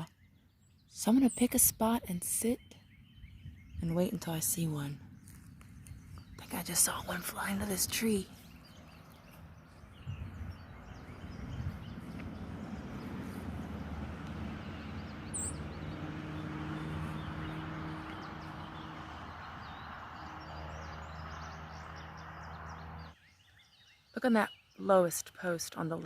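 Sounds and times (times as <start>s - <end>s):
low engine hum: 2.8s - 23.2s.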